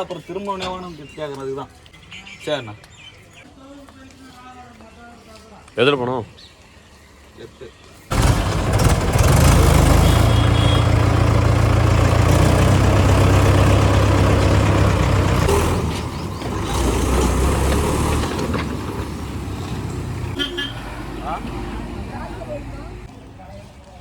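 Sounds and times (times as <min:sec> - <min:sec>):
vehicle engine droning: 0:08.1 - 0:23.2.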